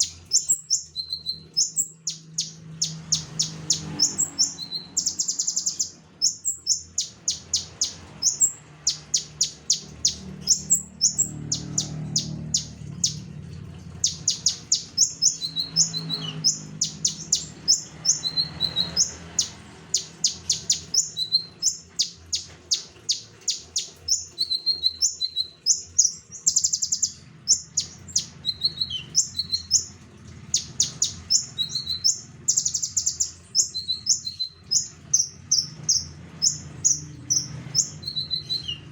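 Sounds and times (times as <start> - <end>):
bird singing high chirps: 0.0 - 38.9
lower whistled bird phrases: 30.6 - 38.9.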